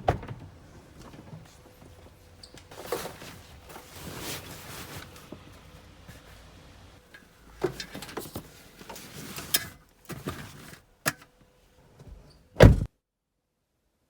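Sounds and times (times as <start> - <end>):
loud thump: 12.6 - 12.9.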